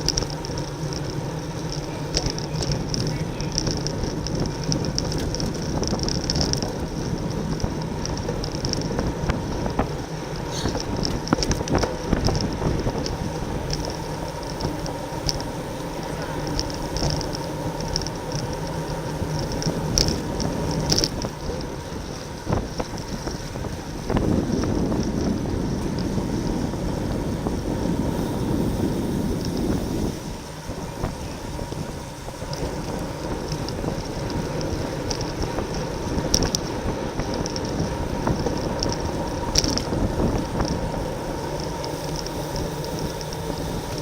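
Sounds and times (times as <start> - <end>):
rolling road noise: 0.0 - 44.0
wind rushing over microphone: 0.0 - 44.0.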